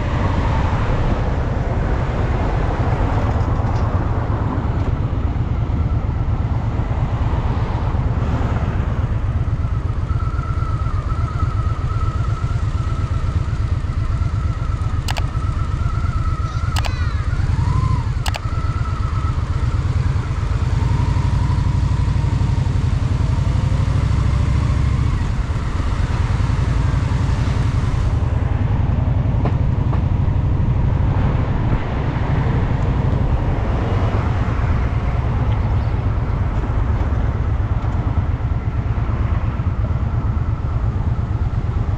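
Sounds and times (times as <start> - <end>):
motorcycle engine running: 0.0 - 41.9
short sharp clicks: 15.0 - 15.4, 16.6 - 17.0, 18.2 - 18.5.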